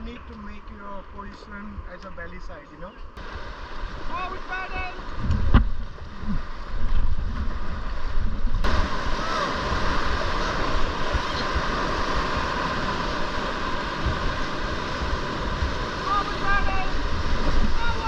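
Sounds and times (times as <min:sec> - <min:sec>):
wind buffeting microphone: 0:00.0 - 0:18.0
rushing whitewater: 0:03.2 - 0:05.2, 0:07.7 - 0:18.0.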